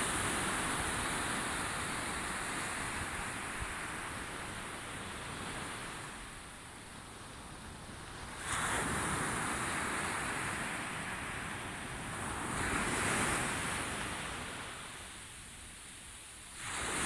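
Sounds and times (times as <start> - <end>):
sea waves breaking on shore: 16.5 - 17.0.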